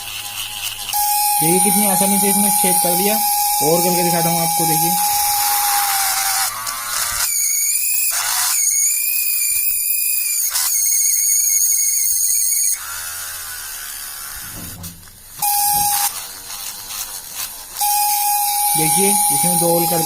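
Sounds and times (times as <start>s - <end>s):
small drill motor whining: 0.1s - 20.0s
short steady tone: 1.0s - 5.7s, 15.4s - 16.1s, 17.8s - 20.0s.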